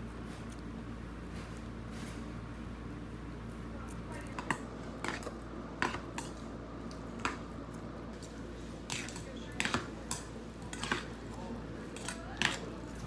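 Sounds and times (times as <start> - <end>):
cutlery clinking against dishes: 4.4 - 6.4, 8.9 - 11.3, 11.9 - 13.0.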